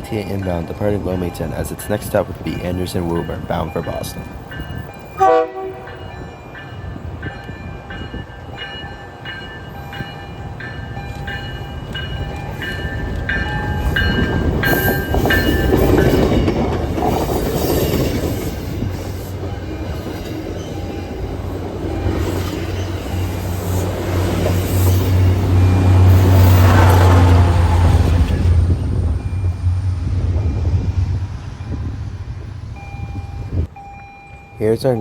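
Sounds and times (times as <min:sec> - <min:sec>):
train bell ringing: 0:00.0 - 0:35.0
train rumble: 0:00.0 - 0:35.0.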